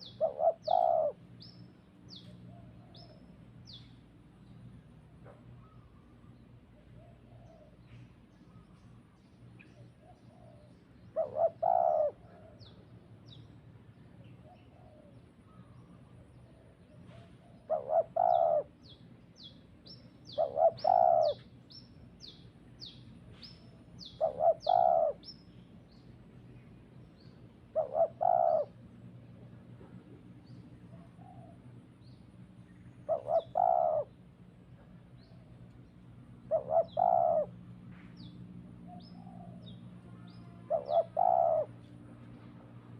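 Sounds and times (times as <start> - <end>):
dove cooing: 0.0 - 1.4, 10.0 - 12.7, 14.4 - 15.7, 16.6 - 18.8, 20.3 - 21.5, 24.0 - 25.3, 27.7 - 28.8, 33.1 - 34.2, 36.4 - 37.6, 38.9 - 41.9.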